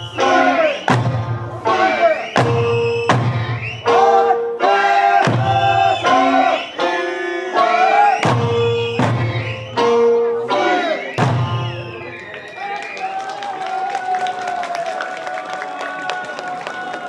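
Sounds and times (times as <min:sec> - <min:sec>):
taiko drum strikes: 0:00.9 - 0:01.8, 0:02.4 - 0:04.3, 0:05.2 - 0:06.3, 0:08.2 - 0:10.4, 0:11.2 - 0:12.0.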